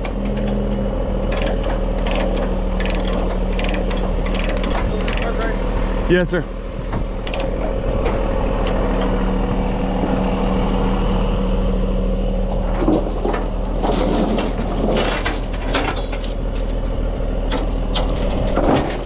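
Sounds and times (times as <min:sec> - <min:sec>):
truck engine idling: 0:00.0 - 0:18.0
metal chains clanking: 0:01.3 - 0:05.5, 0:12.4 - 0:16.9.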